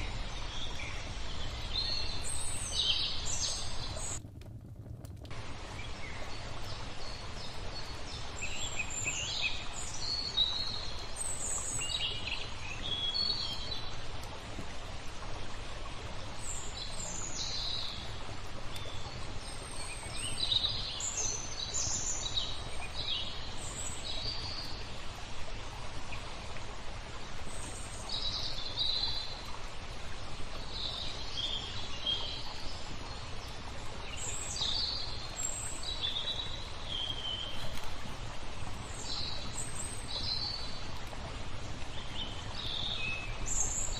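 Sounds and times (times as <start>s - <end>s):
small birds chirping: 0.0s - 4.2s, 30.1s - 41.1s
flowing water: 0.0s - 43.9s.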